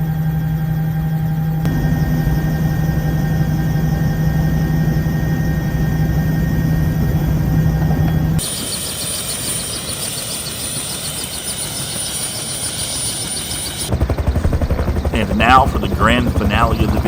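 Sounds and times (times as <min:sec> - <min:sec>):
helicopter engine and rotors droning: 0:00.0 - 0:17.0.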